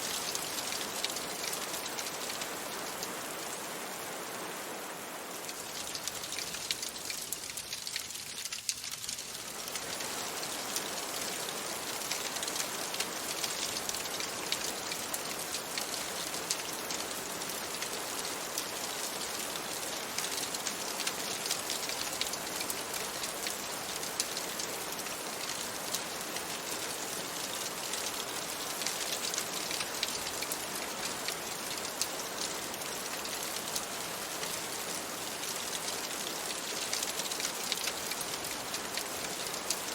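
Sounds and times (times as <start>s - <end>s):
rain on a window: 0.0s - 39.9s
wood fire crackling: 5.4s - 15.9s.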